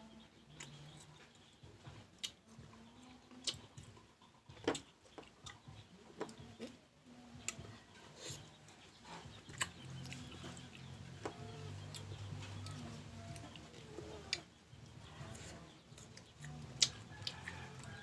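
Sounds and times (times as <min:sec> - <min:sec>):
crunching and chewing: 0:07.4 - 0:18.0.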